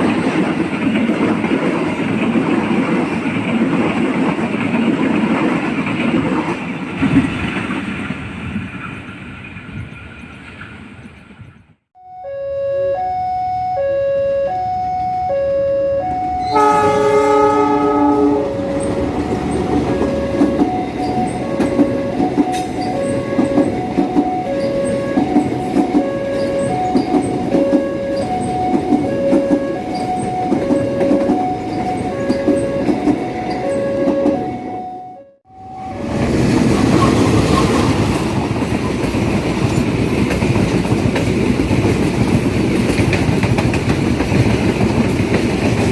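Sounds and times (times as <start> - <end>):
train wheels clacking on rails: 0.0 - 11.4, 18.5 - 34.5, 36.2 - 45.9
train passing close by: 0.0 - 11.7, 16.0 - 45.9
level crossing alarm tones: 12.0 - 36.3
train horn: 12.1 - 36.2.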